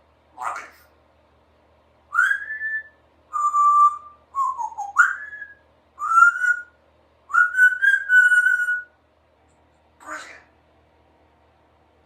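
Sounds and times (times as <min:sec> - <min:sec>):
parrot whistling: 0:02.1 - 0:08.9.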